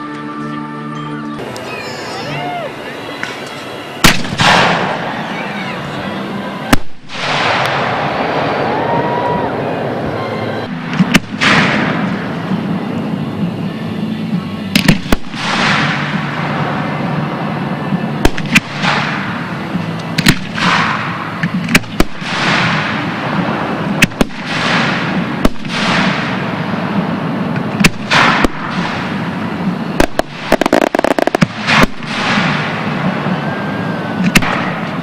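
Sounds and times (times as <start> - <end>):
crackling pops: 3.2 - 5.0, 14.8 - 16.1, 18.2 - 19.3, 20.0 - 23.0, 24.0 - 26.4, 27.5 - 29.2, 30.0 - 32.8
fireworks hissing and crackling: 14.8 - 35.0
firework shell bursts: 30.0 - 33.0.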